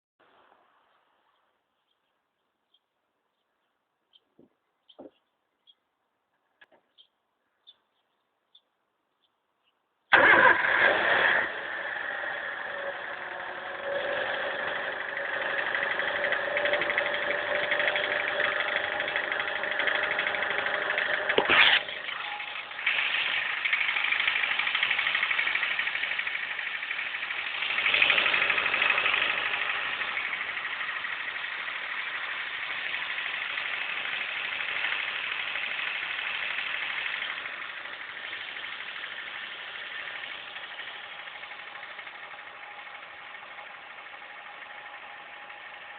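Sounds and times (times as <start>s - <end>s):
car engine idling with knock: 14.9s - 45.9s.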